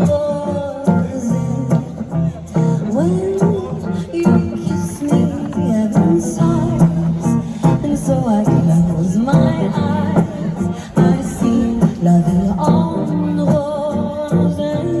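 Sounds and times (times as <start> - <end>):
acoustic guitar: 0.0 - 15.0
person singing: 0.0 - 15.0.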